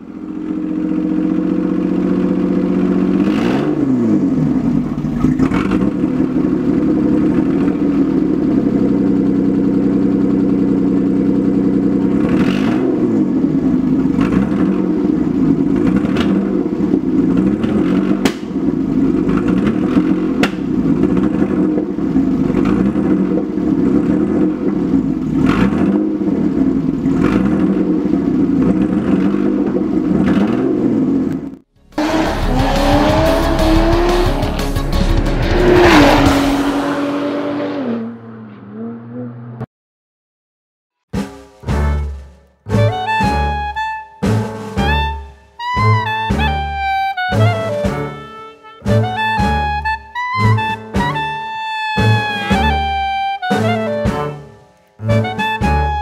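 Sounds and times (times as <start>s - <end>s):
car engine running: 0.0s - 37.8s.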